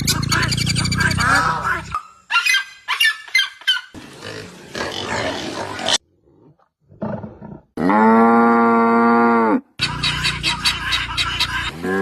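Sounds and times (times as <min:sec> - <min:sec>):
cow mooing: 0:07.8 - 0:09.7.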